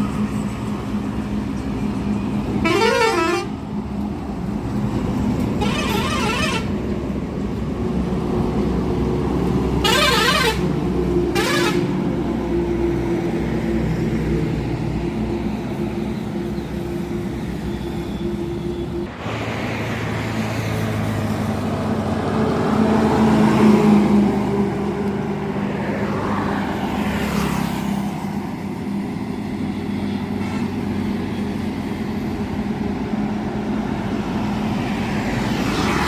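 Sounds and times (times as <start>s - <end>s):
warbling multi-tone truck horn: 2.6s - 3.6s, 5.5s - 6.8s, 9.8s - 12.0s.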